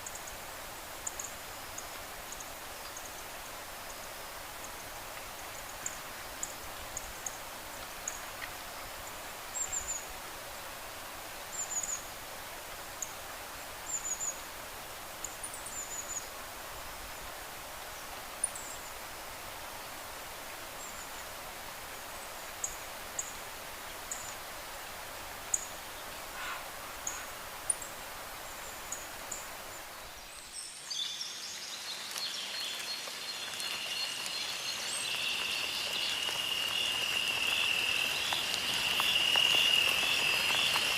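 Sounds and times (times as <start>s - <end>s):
steady outdoor hiss: 0.0s - 40.9s
frogs and insects trilling: 25.5s - 28.0s, 32.1s - 40.9s
small birds chirping: 25.5s - 40.9s.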